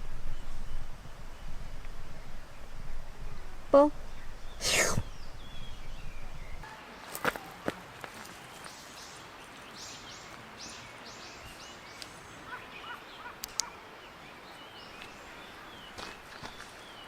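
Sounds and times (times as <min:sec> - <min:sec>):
birds calling: 0:03.8 - 0:06.7, 0:08.2 - 0:17.0.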